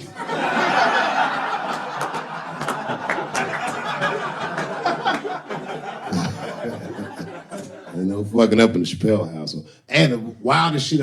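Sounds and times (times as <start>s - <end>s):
large audience laughing: 0.0s - 8.2s.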